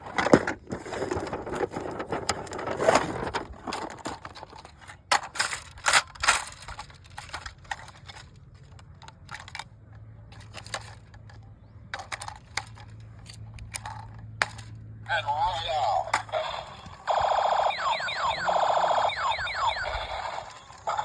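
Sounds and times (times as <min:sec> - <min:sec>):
plastic parts clicking: 0:03.7 - 0:09.7, 0:10.3 - 0:14.8.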